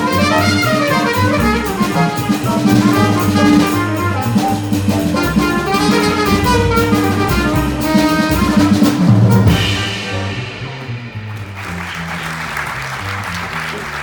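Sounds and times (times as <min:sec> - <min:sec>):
alto saxophone: 0:00.0 - 0:11.0
jazz combo playing: 0:00.0 - 0:14.0
loud accented band hit: 0:00.0 - 0:14.0
trumpet: 0:00.0 - 0:14.0.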